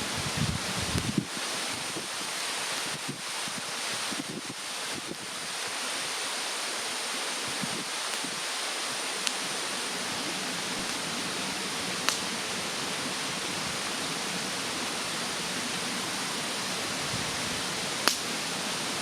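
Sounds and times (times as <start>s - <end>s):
bonfire crackling: 0.0s - 19.0s
steady rushing hiss: 0.0s - 19.0s
sharp fire pops: 12.0s - 12.4s, 18.0s - 18.3s.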